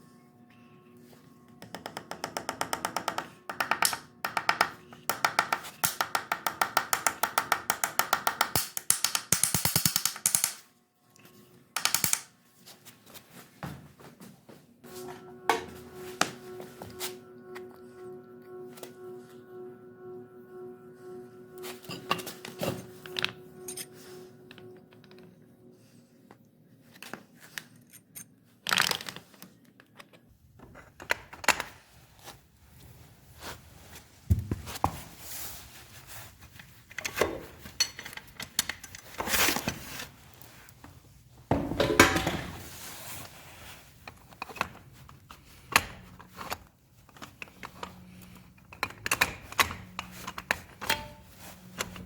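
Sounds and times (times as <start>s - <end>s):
faint background music: 0.0s - 28.6s, 29.8s - 52.0s
knocks and clatters at workbench: 1.7s - 10.6s, 41.5s - 42.7s.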